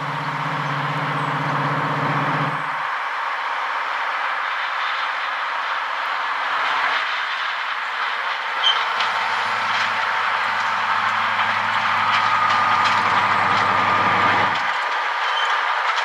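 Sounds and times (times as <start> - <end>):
faint low engine hum: 0.0 - 3.0, 8.5 - 14.7
train wheels rushing on rails: 0.0 - 16.0.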